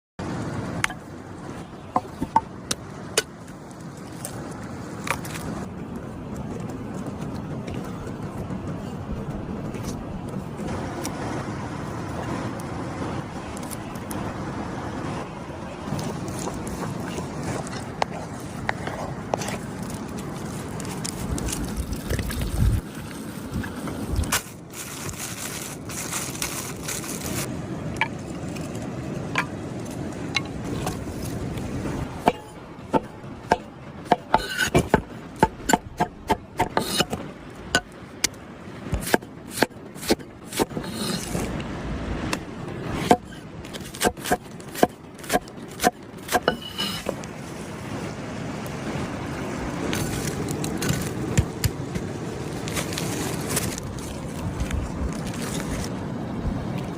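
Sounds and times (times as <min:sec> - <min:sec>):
scraping: 0:30.4 - 0:37.2, 0:46.2 - 0:47.2.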